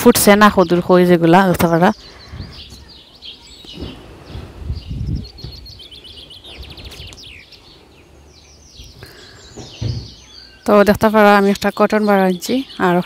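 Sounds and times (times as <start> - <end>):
bird trill: 0.0 - 13.0
songbirds chirping and twittering: 0.0 - 13.0
soft low thumps: 3.7 - 5.8.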